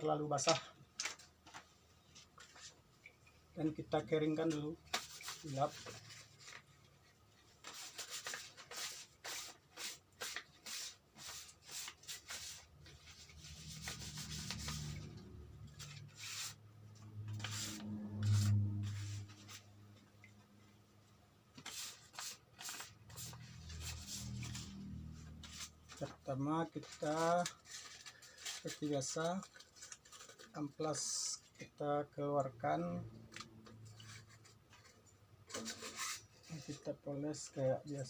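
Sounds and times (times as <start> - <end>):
low hum: 13.5 - 20.8.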